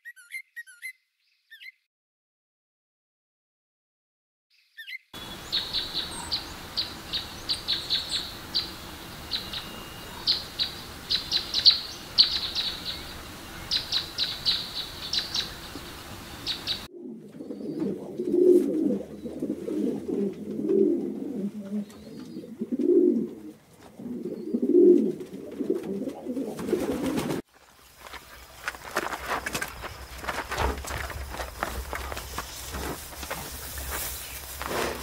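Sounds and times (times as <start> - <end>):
bird chirping: 0.0 - 1.9, 4.5 - 18.0, 21.7 - 22.9
background hiss: 5.2 - 16.9, 18.2 - 35.0
dove cooing: 16.6 - 27.4.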